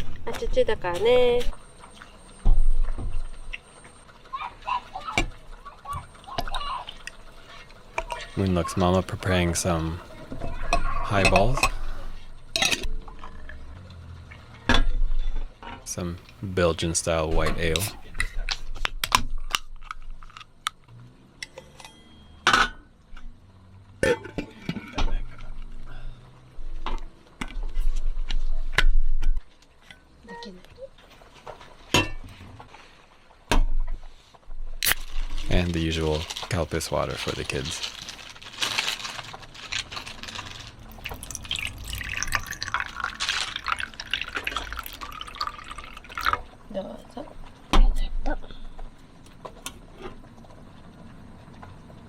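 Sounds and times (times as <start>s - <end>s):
glasses and cans clinking: 10.6s - 12.0s, 40.9s - 46.4s
drinks being poured: 40.8s - 46.6s.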